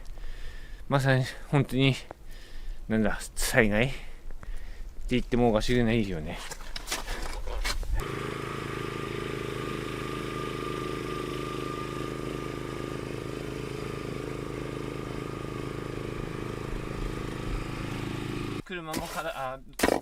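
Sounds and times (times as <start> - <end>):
engine running steadily: 8.0 - 18.6.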